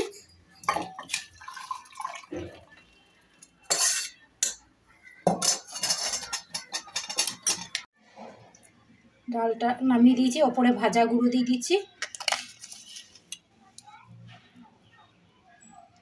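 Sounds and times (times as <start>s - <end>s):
metal pot and spoon clanking: 0.0s - 2.6s, 3.6s - 4.6s, 5.2s - 7.9s.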